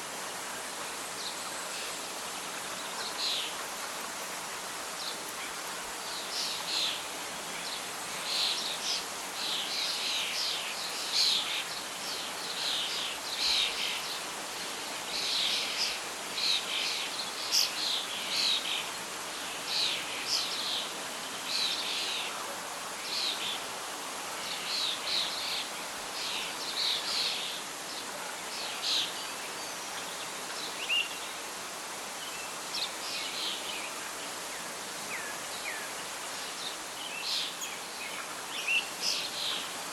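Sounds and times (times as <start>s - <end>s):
songbirds chirping: 0.0s - 39.9s
wind in leaves: 0.0s - 39.9s.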